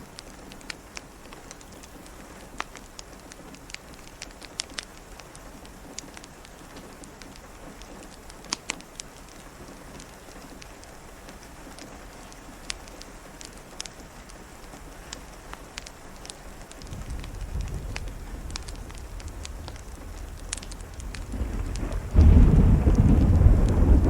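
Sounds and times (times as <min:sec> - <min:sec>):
steady rain falling: 0:00.0 - 0:24.0
sharp ticks: 0:11.7 - 0:23.8
thunder rumble and clap: 0:16.7 - 0:24.0.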